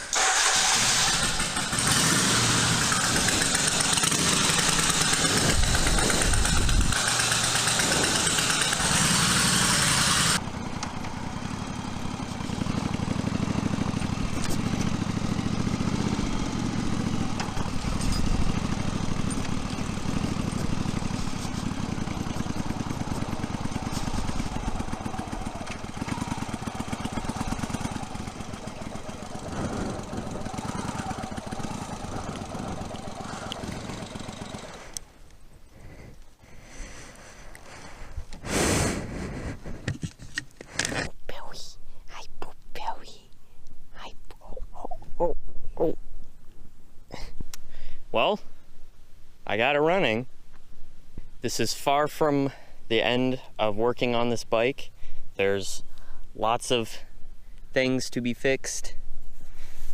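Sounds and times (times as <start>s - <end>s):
loud hissing noise: 0.0s - 10.4s
motorcycle engine idling: 0.0s - 35.1s.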